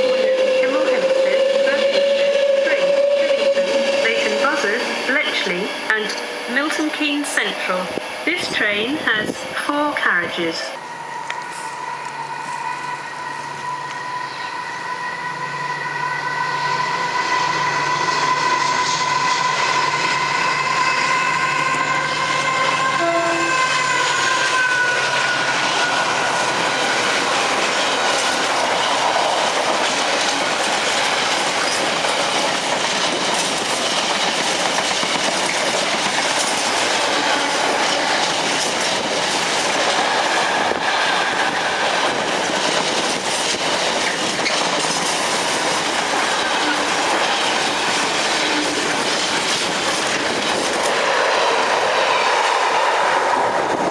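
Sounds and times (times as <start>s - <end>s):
train passing on rails: 0.0s - 53.9s.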